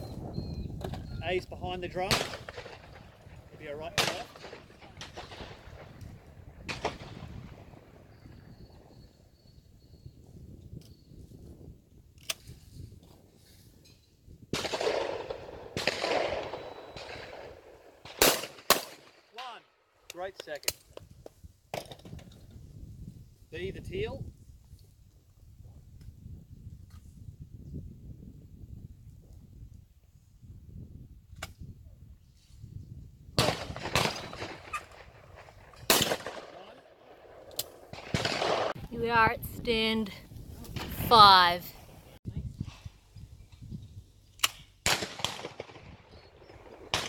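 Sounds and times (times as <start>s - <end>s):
shotgun shots with echo: 3.9s - 5.7s, 14.6s - 19.1s, 35.9s - 36.8s, 37.9s - 38.8s, 44.8s - 46.0s, 46.7s - 47.0s.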